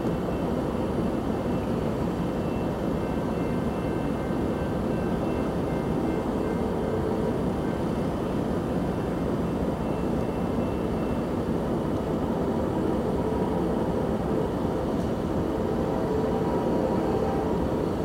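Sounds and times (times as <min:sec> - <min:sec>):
freight train low rumble: 0:00.0 - 0:18.0.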